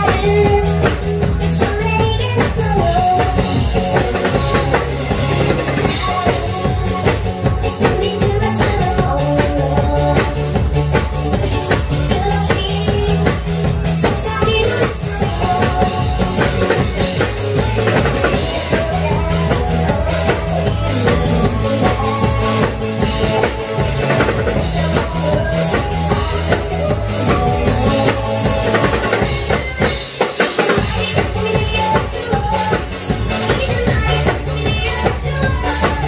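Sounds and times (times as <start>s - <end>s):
drum kit playing: 0.0s - 36.0s
loud backing music: 0.0s - 36.0s.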